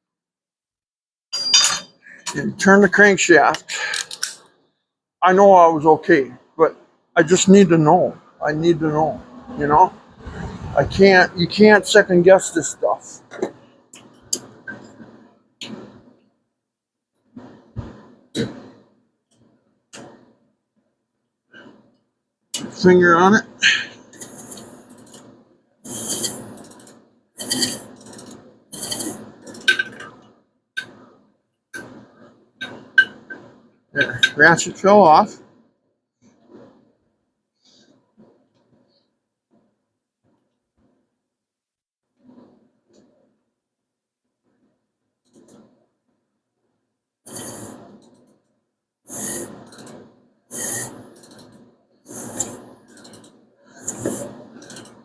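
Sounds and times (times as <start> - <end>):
ratchet clicking: 50.6 - 51.5.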